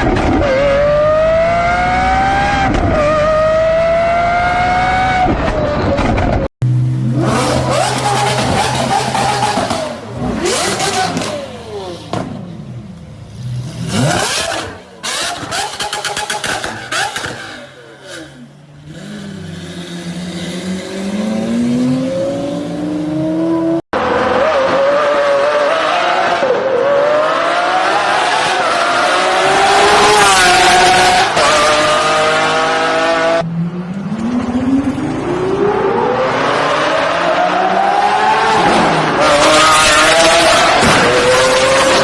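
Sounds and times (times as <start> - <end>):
car engines revving: 0.0 - 42.0.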